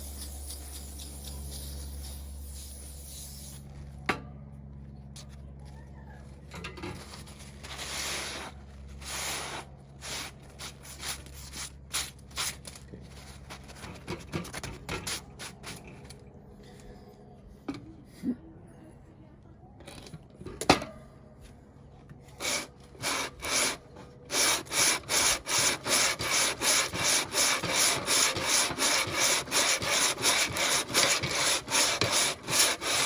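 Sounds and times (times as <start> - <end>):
sandpaper rubbing and scraping: 0.0 - 3.4, 7.0 - 15.9, 22.4 - 33.0.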